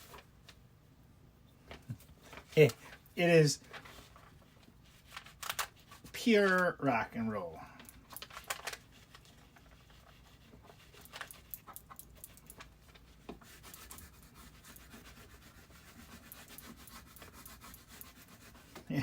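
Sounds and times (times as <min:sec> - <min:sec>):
faint clicks and rustles: 0:01.6 - 0:06.7, 0:07.8 - 0:14.1.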